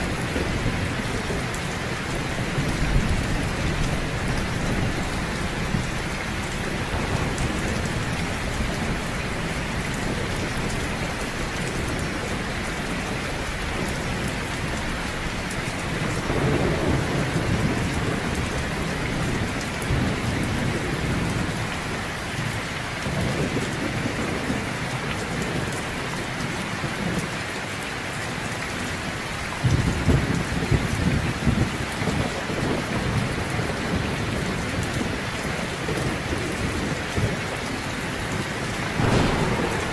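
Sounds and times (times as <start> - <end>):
thunder rumbling: 0.0 - 21.9, 35.8 - 39.9
heavy rain falling: 0.0 - 39.9.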